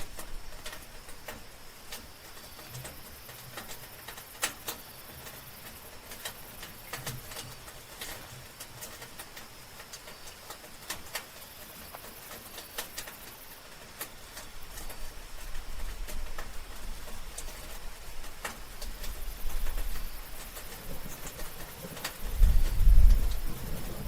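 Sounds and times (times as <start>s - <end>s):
soft rain falling: 0.0s - 24.0s.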